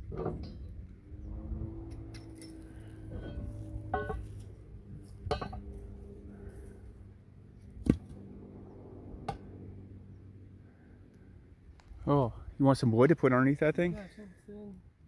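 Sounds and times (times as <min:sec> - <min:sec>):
steady low hum: 0:00.0 - 0:12.6
steel equipment clanking: 0:01.8 - 0:04.6.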